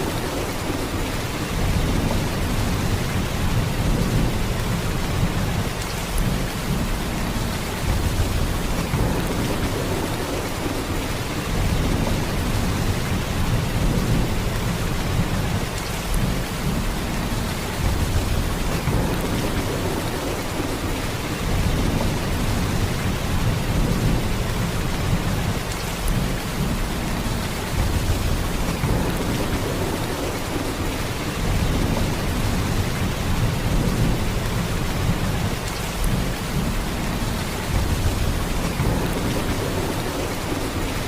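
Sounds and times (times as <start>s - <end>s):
heavy rain downpour: 0.0s - 41.0s.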